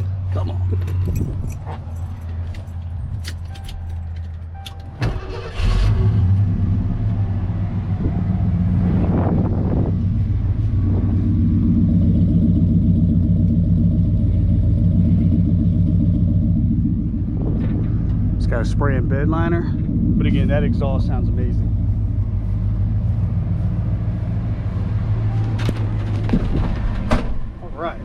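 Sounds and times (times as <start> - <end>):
engine cranking and starting: 3.1 - 6.5
engine revving and idling: 5.1 - 28.0.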